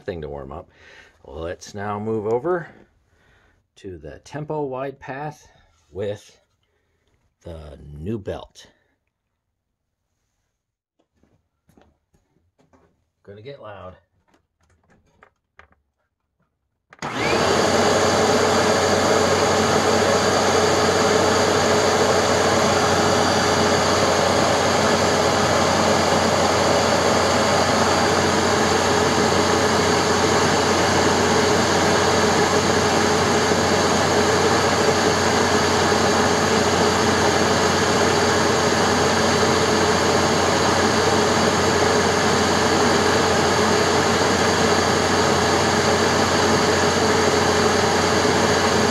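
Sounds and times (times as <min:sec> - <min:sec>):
upright vacuum running: 0:17.0 - 0:48.9.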